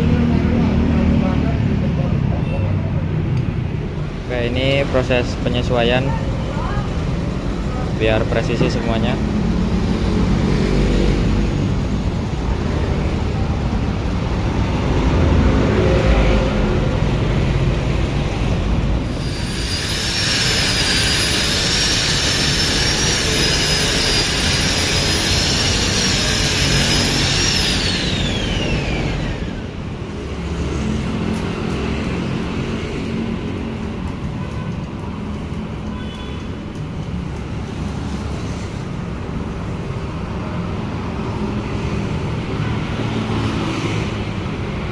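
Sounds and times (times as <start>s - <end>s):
power grinder whining: 19.1s - 29.8s.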